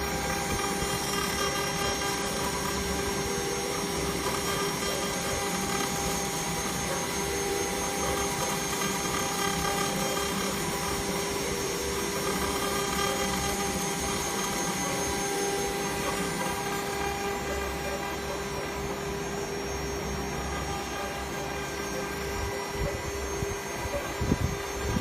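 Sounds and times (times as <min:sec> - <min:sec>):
engraving machine whine: 0:00.0 - 0:25.0.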